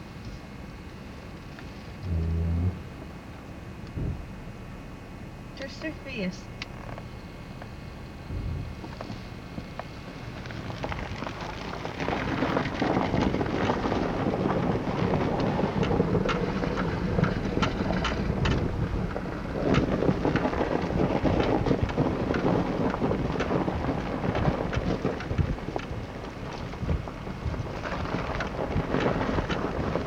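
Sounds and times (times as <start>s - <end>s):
small clicks and crackles: 0.1s - 2.2s, 8.8s - 30.0s
wind buffeting microphone: 2.0s - 4.4s, 8.2s - 30.0s.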